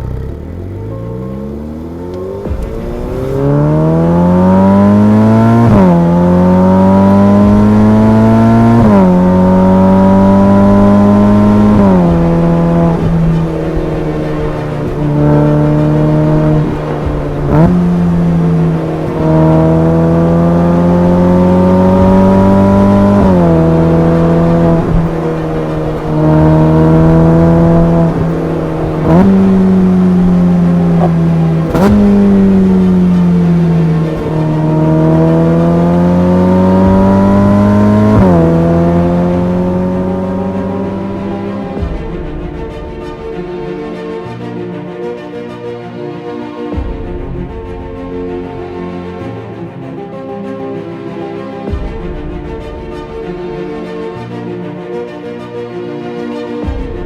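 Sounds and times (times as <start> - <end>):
sports car engine accelerating: 0.0 - 44.0.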